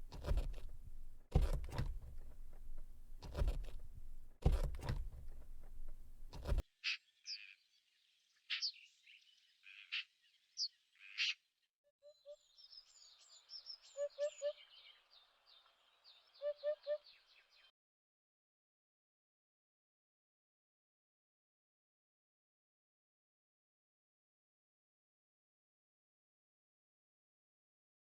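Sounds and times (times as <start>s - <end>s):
rough noise with knocks: 0.0s - 6.6s
bird chirping: 5.2s - 11.4s, 12.0s - 17.7s.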